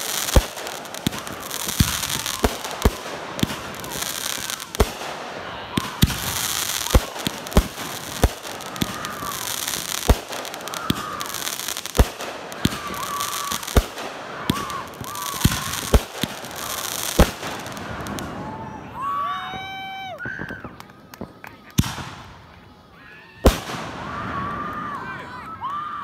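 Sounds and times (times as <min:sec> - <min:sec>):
fireworks bangs: 0:00.0 - 0:18.9, 0:23.4 - 0:25.2
fireworks crackling: 0:00.0 - 0:25.7.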